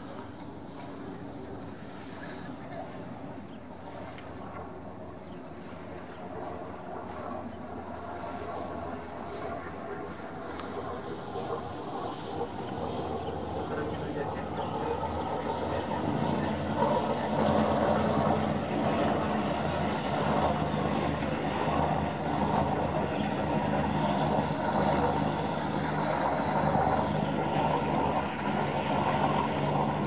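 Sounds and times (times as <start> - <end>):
boat engine humming: 0.0 - 30.0.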